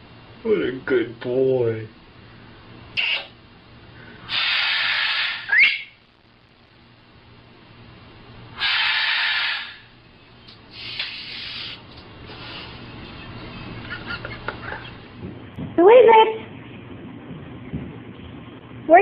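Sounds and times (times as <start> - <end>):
parrot hissing: 4.2 - 6.0, 8.6 - 9.9, 10.7 - 12.9
parrot rising whistle: 4.3 - 6.0, 8.6 - 9.9.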